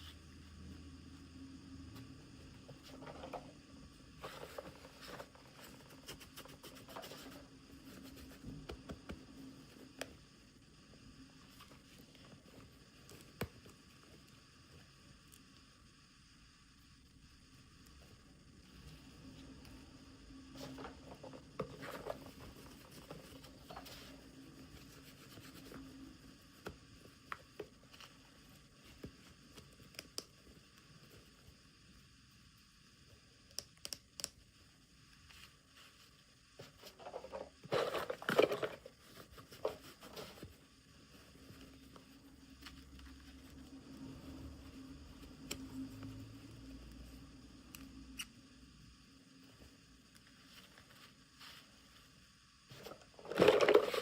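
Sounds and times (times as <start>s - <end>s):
plastic packaging rustling: 36.9s - 40.4s.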